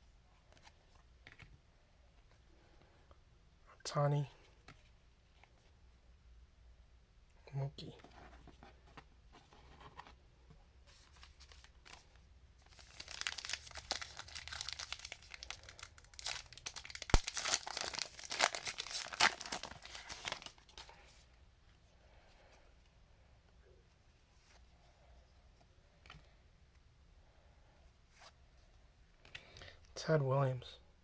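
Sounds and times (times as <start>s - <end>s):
plastic foil wrapper tearing: 12.7s - 20.7s.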